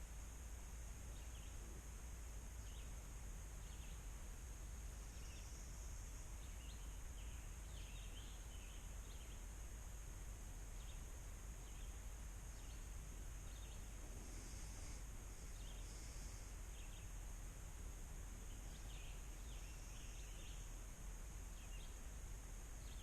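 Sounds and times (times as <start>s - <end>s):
steady high hiss: 0.0s - 23.0s.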